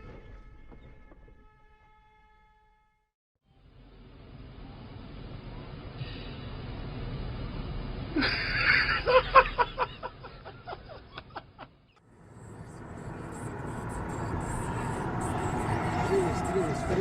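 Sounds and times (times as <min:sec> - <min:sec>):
vehicle and road noise: 0:03.5 - 0:17.0
person laughing: 0:08.2 - 0:11.7.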